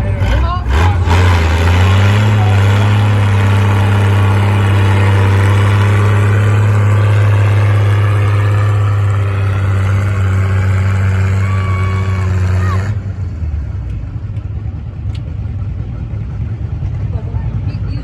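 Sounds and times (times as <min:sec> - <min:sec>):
loud tractor engine revving: 0:00.0 - 0:13.7.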